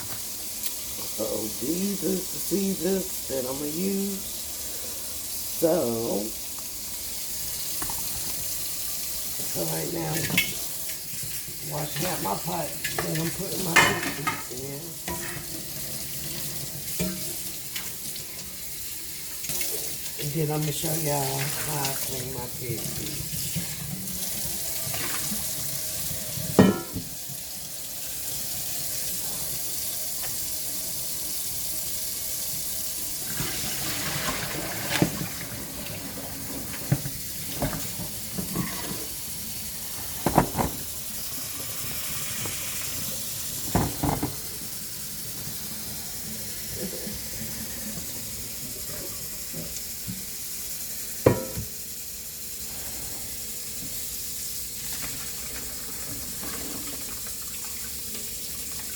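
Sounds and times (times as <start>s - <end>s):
tap running into sink: 7.6s - 8.7s, 33.2s - 39.1s, 40.0s - 44.7s, 51.2s - 51.8s
knocks and clunks against sink: 40.2s - 40.9s, 43.6s - 44.5s, 51.2s - 51.7s.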